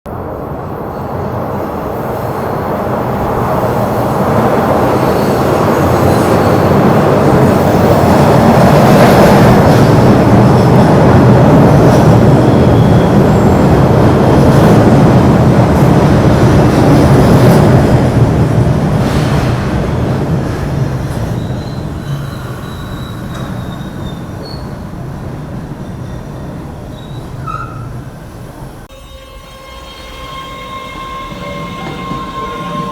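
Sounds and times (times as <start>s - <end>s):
train rumbling past: 0.1s - 32.9s
high wheel squeals: 21.2s - 28.2s, 28.9s - 32.9s.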